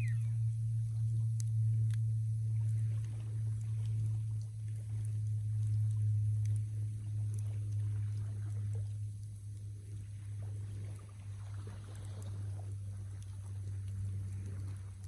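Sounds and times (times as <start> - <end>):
steady low hum: 0.0 - 15.0
small pops and ticks: 0.9 - 6.6.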